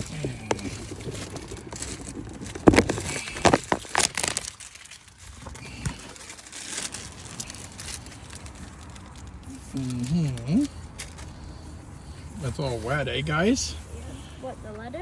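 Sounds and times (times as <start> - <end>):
plastic wrapping crinkling: 0.0 - 11.4.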